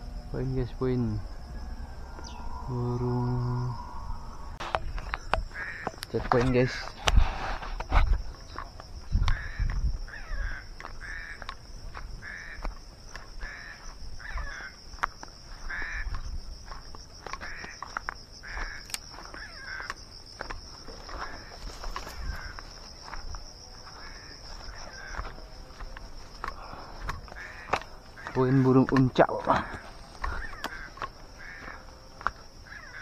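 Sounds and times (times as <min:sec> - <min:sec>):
high-pitched insect drone: 0:00.0 - 0:33.0
bird giving harsh calls: 0:01.3 - 0:05.9
footsteps: 0:15.0 - 0:32.5.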